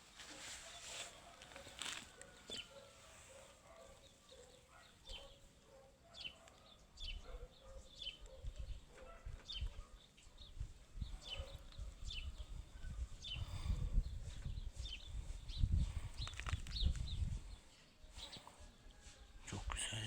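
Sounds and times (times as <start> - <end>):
small bird chirping: 3.7 - 18.7.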